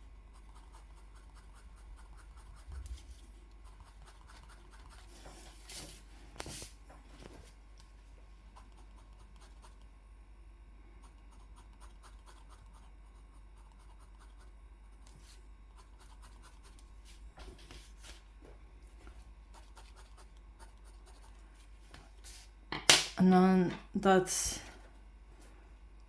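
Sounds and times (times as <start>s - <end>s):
drawing tool scratching paper: 0.3s - 5.4s, 19.5s - 21.4s.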